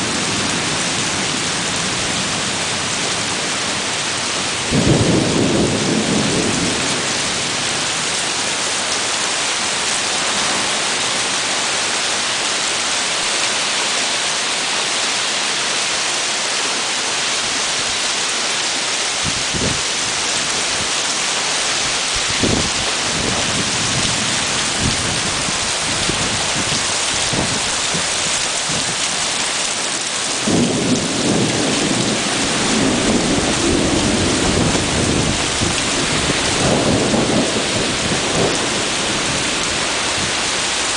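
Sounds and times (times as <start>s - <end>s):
heavy rain hissing: 0.0s - 40.9s
thunder rumbling: 4.6s - 8.9s, 21.9s - 29.1s, 30.3s - 40.9s.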